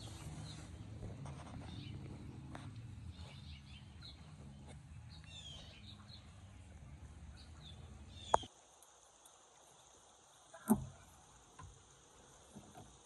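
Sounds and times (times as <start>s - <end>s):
low steady rumble: 0.0s - 8.5s
small birds chirping: 0.0s - 13.0s.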